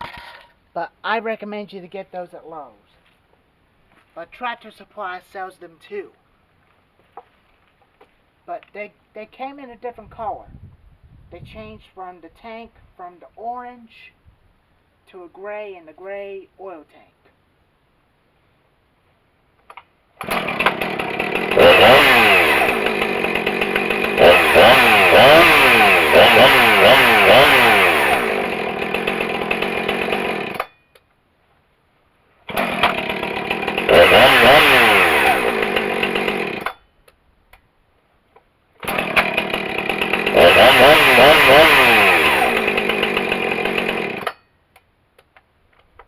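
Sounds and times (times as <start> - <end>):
chainsaw engine revving: 20.2 - 30.7, 32.5 - 36.8, 38.8 - 44.4.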